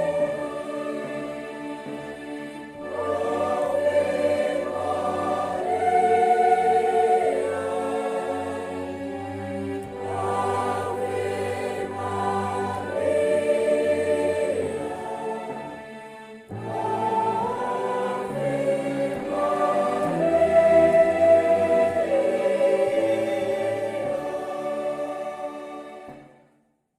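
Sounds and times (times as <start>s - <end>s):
church choir singing: 0.0s - 26.6s.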